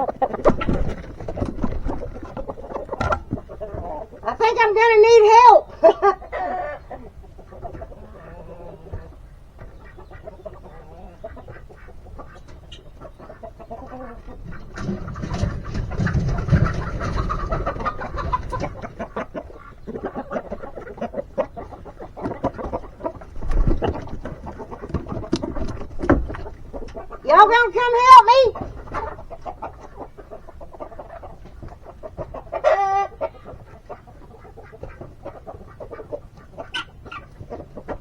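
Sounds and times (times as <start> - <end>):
chickens clucking: 0.0 - 38.0.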